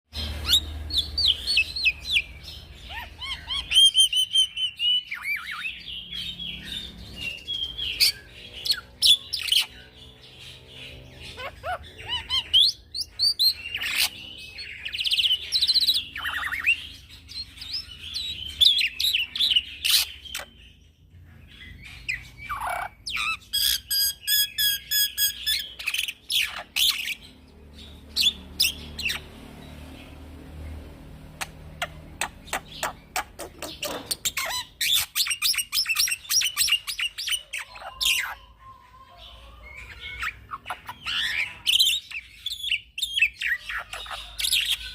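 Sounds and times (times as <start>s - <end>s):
starling singing whistles and trills: 21.8s - 29.3s, 31.8s - 38.7s.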